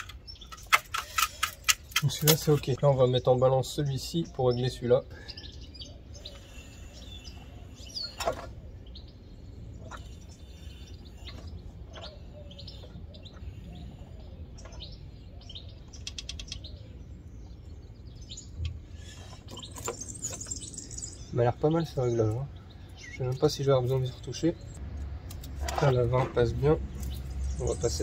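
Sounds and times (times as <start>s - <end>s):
birds chirping: 0.0s - 28.0s
sharp clicks: 15.9s - 16.7s.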